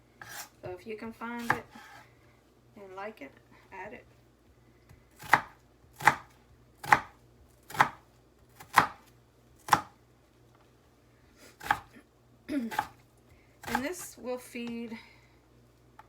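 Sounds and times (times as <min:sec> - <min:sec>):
knife chopping on cutting board: 0:00.2 - 0:00.5, 0:01.4 - 0:02.0, 0:05.2 - 0:09.9, 0:11.6 - 0:11.9, 0:12.7 - 0:13.0, 0:13.6 - 0:13.8.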